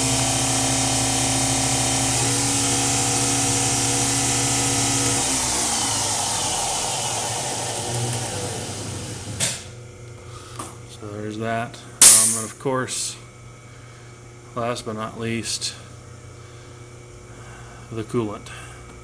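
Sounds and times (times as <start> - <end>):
lathe spindle motor whining: 0.0 - 9.4.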